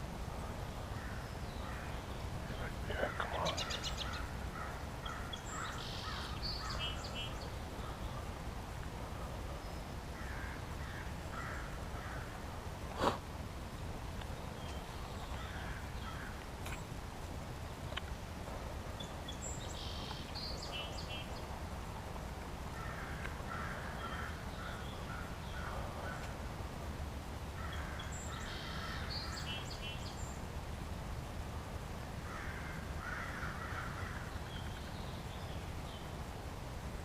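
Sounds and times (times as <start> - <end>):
wild birds calling: 0.0 - 17.0, 17.6 - 21.7, 22.4 - 26.6, 27.5 - 30.5, 32.2 - 36.3
steady low rumble: 0.0 - 28.3
crows cawing: 2.7 - 6.9, 10.2 - 12.4, 15.4 - 16.4, 22.8 - 26.3, 27.6 - 29.4, 32.3 - 34.3.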